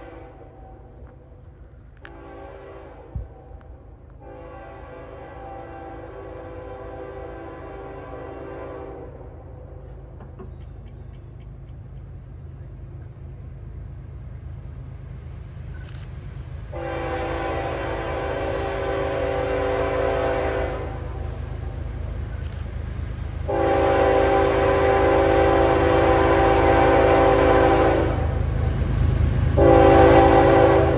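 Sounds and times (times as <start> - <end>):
locomotive air horn: 0.0 - 0.8, 2.0 - 3.4, 4.2 - 9.4, 16.7 - 21.3, 23.5 - 28.4, 29.6 - 30.9
train rumbling: 0.0 - 30.9.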